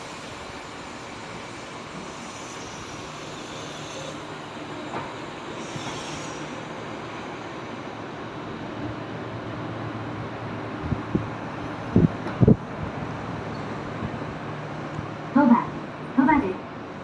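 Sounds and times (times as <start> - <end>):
train wheels squealing: 0.0 - 6.8, 13.5 - 13.8
train rumbling slowly: 0.0 - 17.0.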